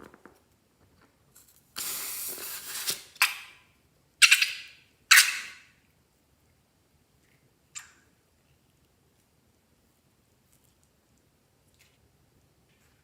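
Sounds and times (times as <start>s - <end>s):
rough hiss: 1.8s - 3.2s.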